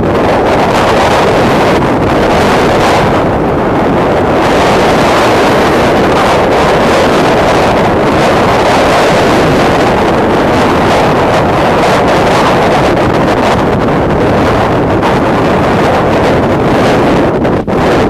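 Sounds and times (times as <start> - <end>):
wind blowing across microphone: 0.0 - 18.0.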